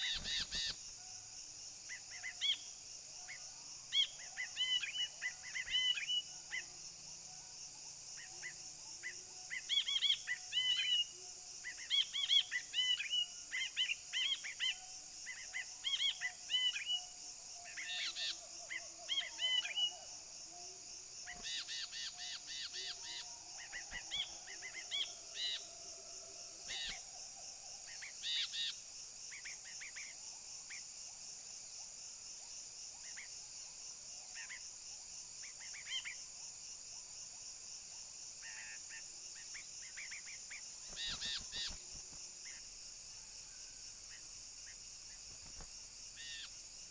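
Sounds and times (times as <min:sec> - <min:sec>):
bird chirping: 0:00.0 - 0:00.8, 0:39.4 - 0:42.6
high-pitched hiss: 0:38.4 - 0:46.9.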